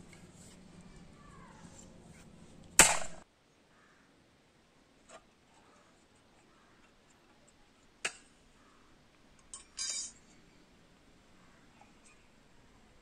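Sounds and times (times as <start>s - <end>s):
metal parts clicking: 9.4s - 10.2s
metal rattling clink: 9.4s - 10.3s.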